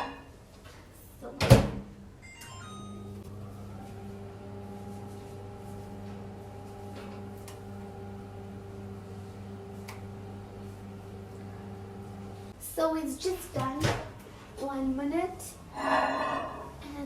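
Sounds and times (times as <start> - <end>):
microwave oven humming: 2.2 - 12.6.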